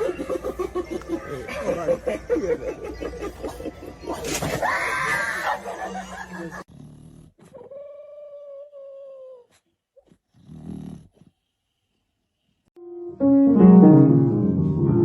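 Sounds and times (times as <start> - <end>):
voices and laughter: 0.0 - 6.7
dog whining: 7.4 - 10.2.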